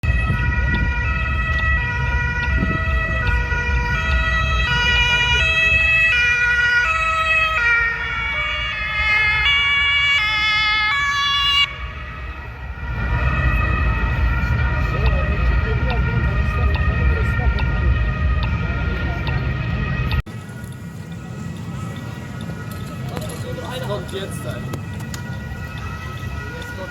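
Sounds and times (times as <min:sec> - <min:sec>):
police two-tone siren: 0:00.0 - 0:26.9
traffic rumble: 0:00.0 - 0:26.9.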